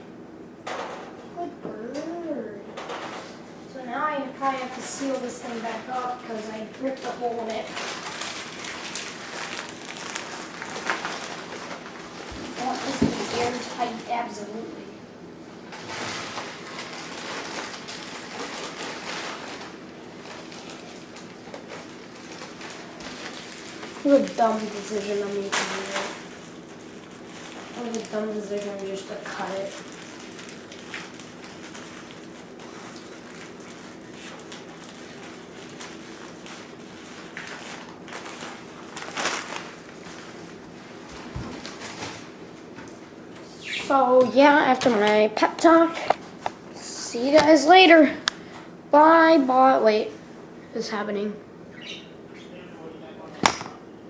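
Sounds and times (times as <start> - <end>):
steady low hum: 0.0 - 54.0
plastic packaging crinkling: 4.5 - 14.2, 15.7 - 42.4.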